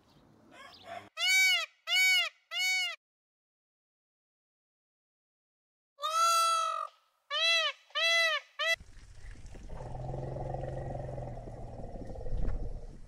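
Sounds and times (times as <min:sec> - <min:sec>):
peacock calling: 0:06.0 - 0:08.8.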